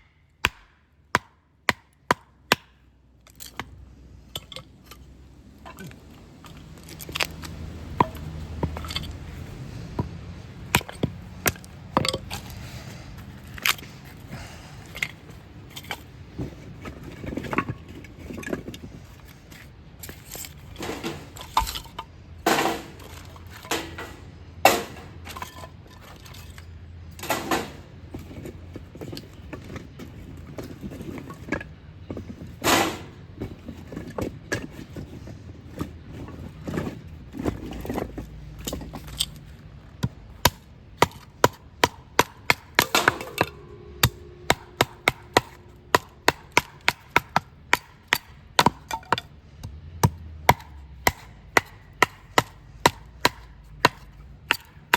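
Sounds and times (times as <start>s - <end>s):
hatchet chopping kindling: 0.0s - 3.7s, 6.8s - 12.6s, 22.4s - 25.5s, 40.0s - 54.9s.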